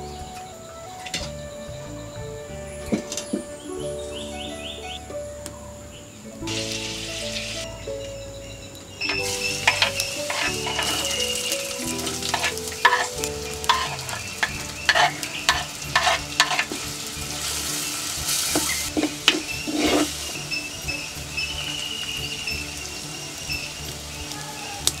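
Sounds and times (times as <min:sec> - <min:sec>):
onions sizzling in oil: 0:06.4 - 0:07.8, 0:09.0 - 0:25.0
wooden spoon scraping a pot: 0:09.2 - 0:17.8, 0:18.4 - 0:20.4.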